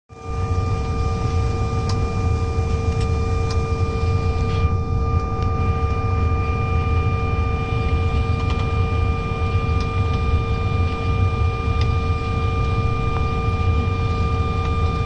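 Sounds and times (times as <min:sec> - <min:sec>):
high systems whine: 0:00.1 - 0:15.0
aircraft cabin rumble: 0:00.2 - 0:15.0.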